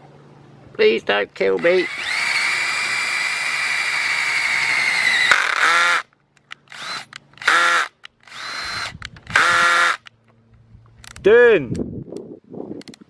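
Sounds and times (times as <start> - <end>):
electric drill whining: 1.6 - 6.0, 6.7 - 10.1.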